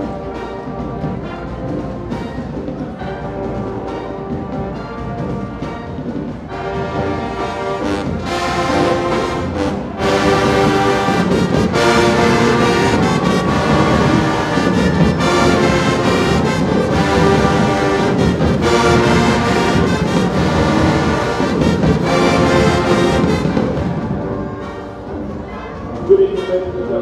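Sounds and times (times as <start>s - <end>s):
brass section playing chords: 0.0s - 27.0s
drums: 0.0s - 27.0s.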